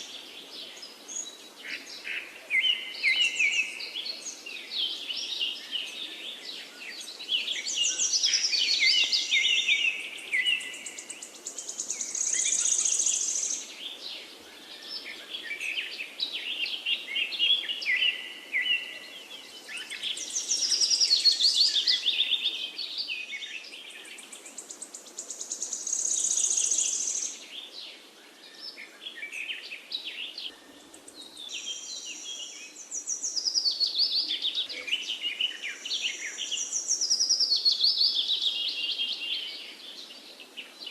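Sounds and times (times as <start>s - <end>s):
faint steady hiss: 0.0s - 40.9s
songbirds trilling and chirping: 0.0s - 40.9s.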